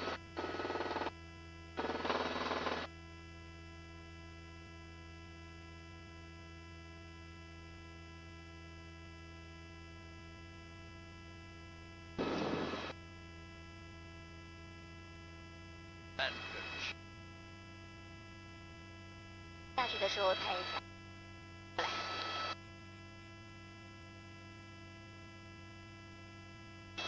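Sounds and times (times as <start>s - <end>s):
electrical hum: 12.2s - 12.9s, 16.2s - 17.2s, 17.8s - 20.8s, 21.8s - 22.6s.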